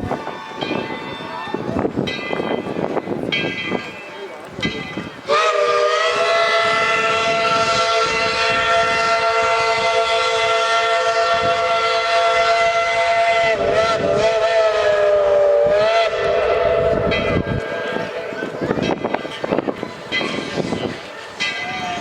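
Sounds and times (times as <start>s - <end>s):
steam locomotive whistle blast: 5.3s - 18.5s.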